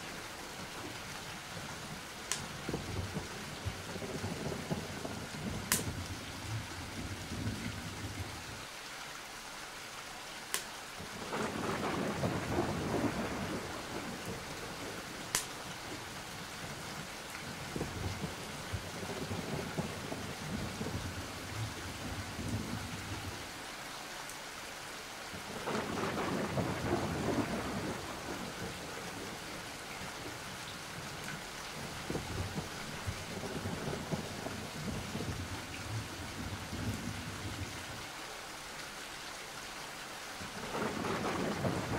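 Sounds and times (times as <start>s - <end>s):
steady rain: 0.0s - 41.9s
thunder rumbling: 2.4s - 8.4s, 11.2s - 23.4s, 25.3s - 37.9s, 40.4s - 41.9s
sharp thunder crack: 11.3s - 14.4s, 25.6s - 28.8s, 40.7s - 41.9s.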